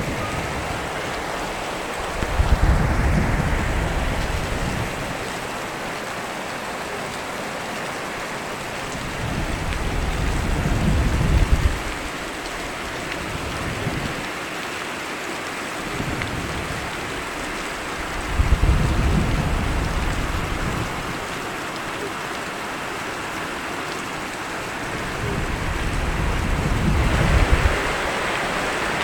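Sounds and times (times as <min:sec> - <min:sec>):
low rumble of thunder: 0:00.0 - 0:05.7, 0:09.0 - 0:14.3, 0:16.0 - 0:21.4, 0:24.7 - 0:29.0
steady rain falling: 0:00.0 - 0:29.0.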